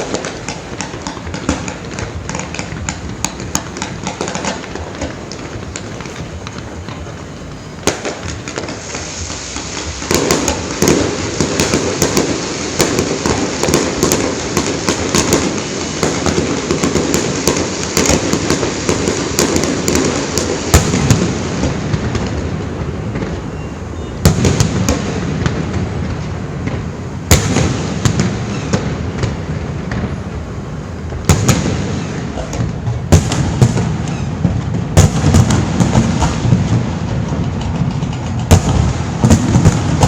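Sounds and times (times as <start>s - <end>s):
fireworks bangs: 0.0s - 40.0s
fireworks crackling: 0.0s - 40.0s.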